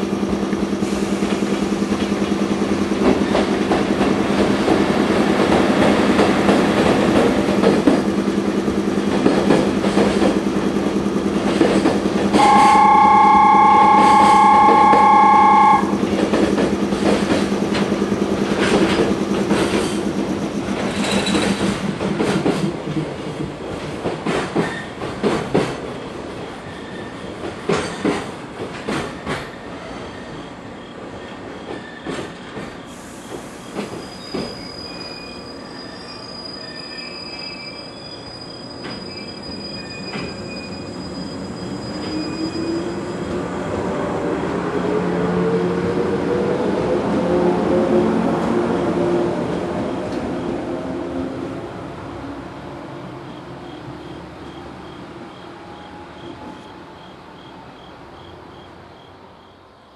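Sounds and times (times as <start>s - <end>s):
train wheels clicking over rails: 0.1s - 34.8s.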